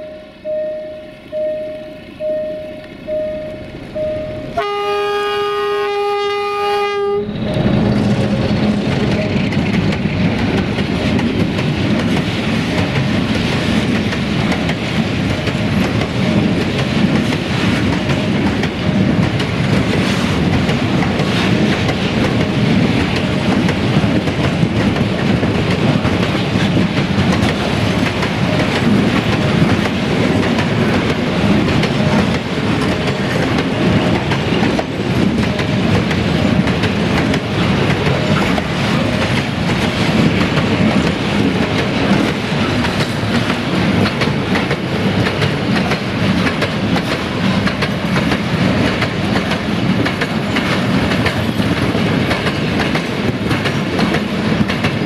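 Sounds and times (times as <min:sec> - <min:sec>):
locomotive horn blast: 0:02.7 - 0:07.8.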